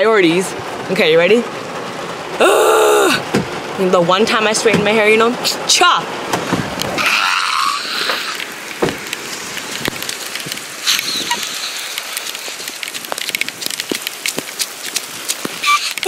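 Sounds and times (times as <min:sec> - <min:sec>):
heavy rain falling: 0:00.0 - 0:16.0
raindrops ticking on microphone: 0:00.0 - 0:16.0
woman screaming: 0:02.4 - 0:03.2.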